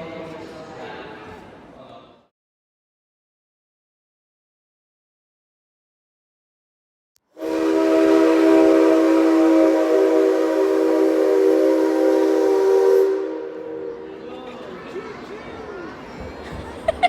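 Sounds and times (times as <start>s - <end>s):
locomotive whistle blast: 7.4s - 14.1s.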